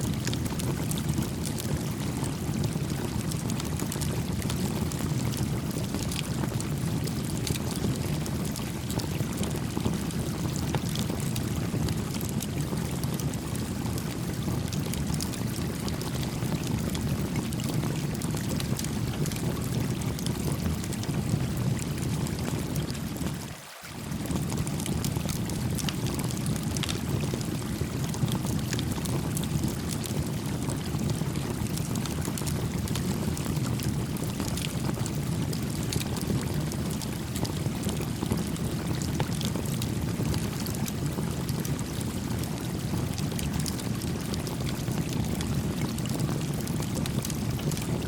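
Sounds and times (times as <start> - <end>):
campfire crackling: 32.2 - 40.3.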